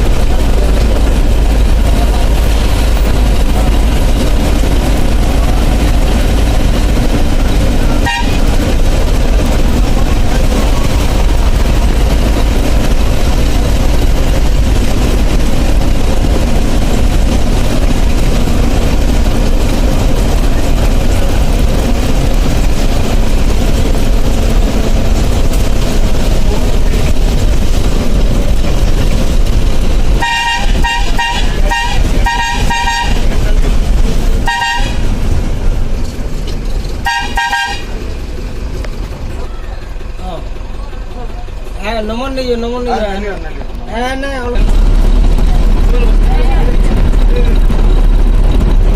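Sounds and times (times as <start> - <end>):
bus engine and road noise: 0.0 - 48.9
two-tone horn blasts: 7.8 - 8.8, 30.2 - 33.4, 34.4 - 35.2, 37.0 - 38.0.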